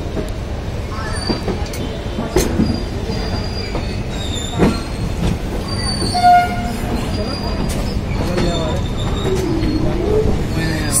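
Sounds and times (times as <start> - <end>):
train rumbling over track: 0.0 - 11.0
high wheel squeals: 0.9 - 11.0.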